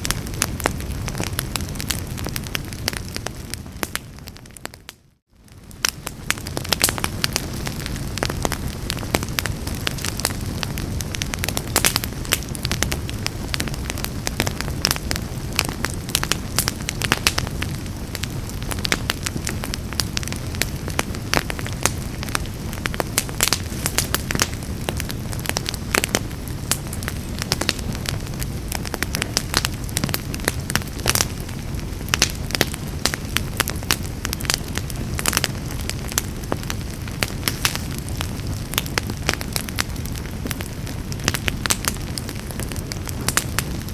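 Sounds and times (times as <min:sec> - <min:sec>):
wood fire crackling and popping: 0:00.0 - 0:43.9.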